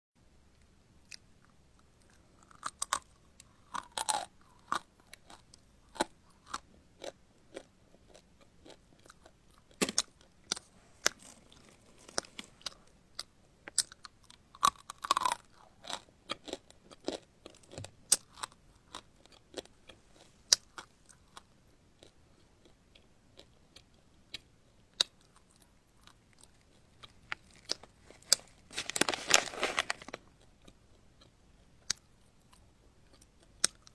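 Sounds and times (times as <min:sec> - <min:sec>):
crunchy chewing: 0:02.0 - 0:31.3.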